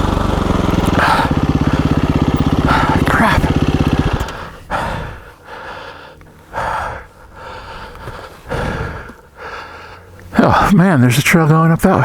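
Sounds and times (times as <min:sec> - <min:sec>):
person breathing hard and gasping: 0:02.6 - 0:03.6, 0:04.2 - 0:10.7.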